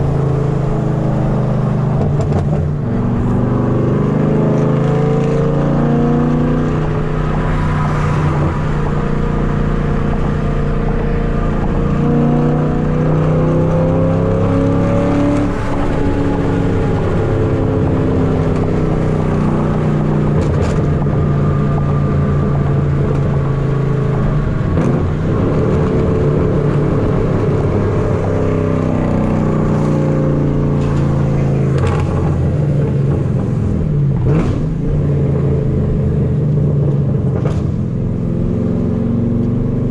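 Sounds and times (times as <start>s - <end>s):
loud car engine exhaust: 0.0s - 39.9s.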